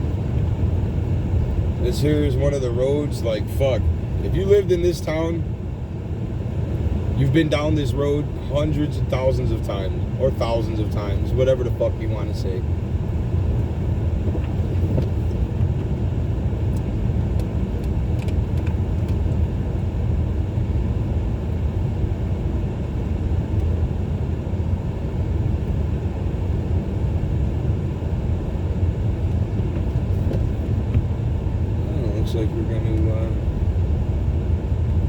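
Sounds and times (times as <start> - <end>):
car engine and tyre noise: 0.0 - 35.0.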